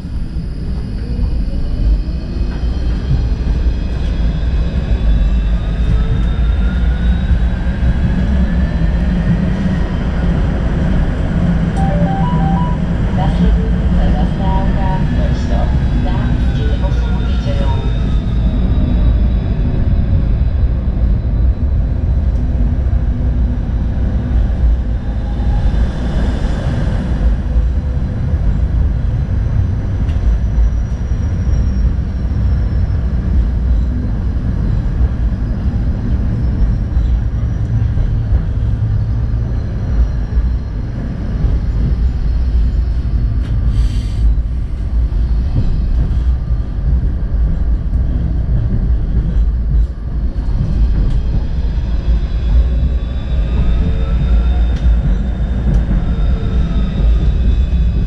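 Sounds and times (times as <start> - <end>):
tram wheels rumbling on rails: 0.0 - 58.0
hiss: 43.7 - 44.3.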